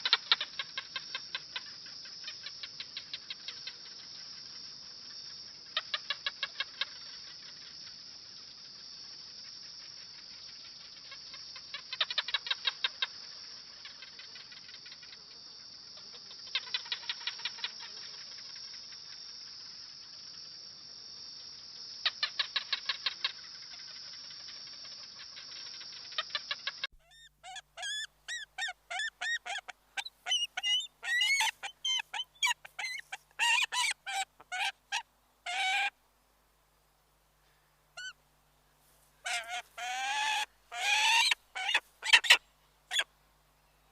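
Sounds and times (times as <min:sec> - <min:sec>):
varied bird calls: 0:26.0 - 0:36.0, 0:37.5 - 0:38.2, 0:39.1 - 0:43.1
steady high hiss: 0:26.8 - 0:43.9.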